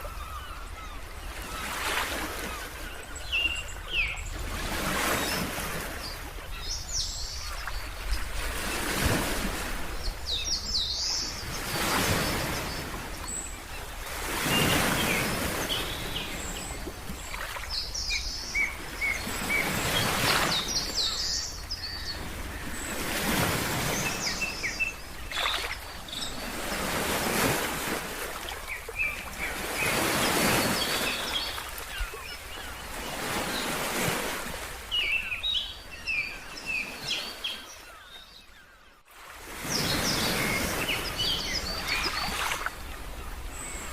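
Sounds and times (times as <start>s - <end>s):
birds chirping: 0.0s - 39.0s, 39.6s - 43.9s
ocean waves washing in: 1.4s - 35.6s.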